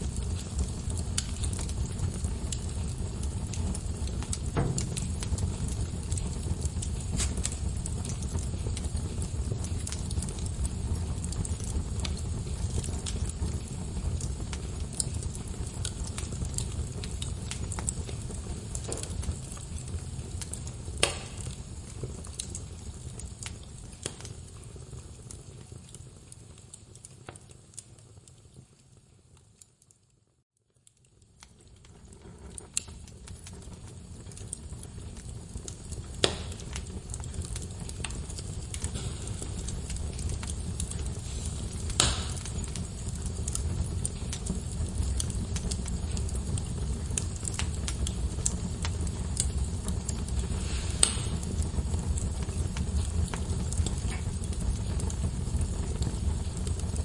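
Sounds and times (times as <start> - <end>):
log fire crackling: 0.0 - 57.0
low rumble of flames: 0.0 - 57.0
sharp pops: 21.0 - 21.5, 36.2 - 36.6, 42.0 - 42.5, 50.6 - 51.4.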